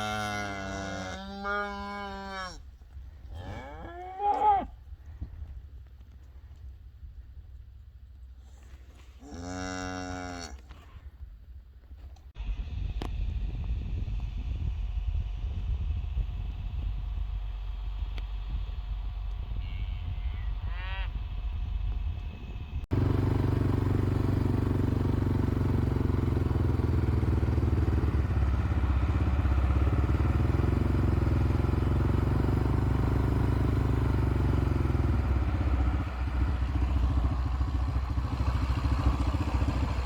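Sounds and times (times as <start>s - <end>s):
vehicle engine running: 0.0s - 3.3s, 12.3s - 40.0s.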